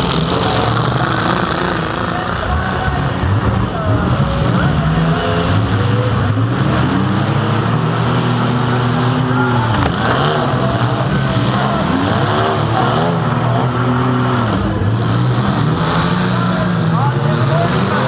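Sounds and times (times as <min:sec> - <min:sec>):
car engine revving loud: 0:00.0 - 0:18.0.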